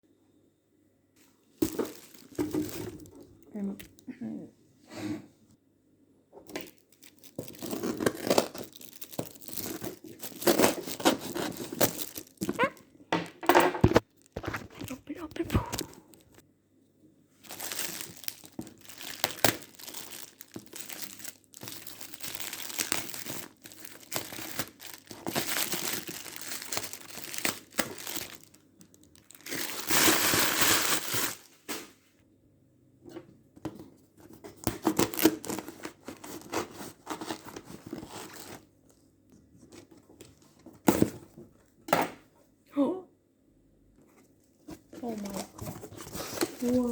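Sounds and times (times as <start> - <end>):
packaging crinkling and tearing: 1.6 - 3.3, 6.5 - 12.9, 13.8 - 16.4, 17.4 - 31.8, 34.6 - 38.7, 44.9 - 46.9.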